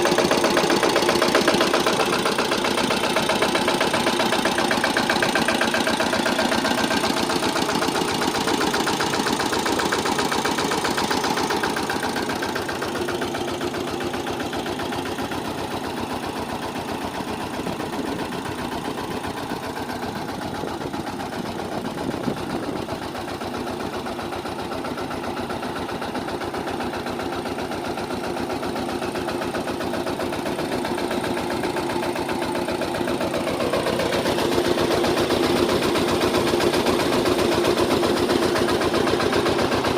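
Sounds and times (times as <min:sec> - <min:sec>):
mini tractor engine running: 0:00.0 - 0:39.9.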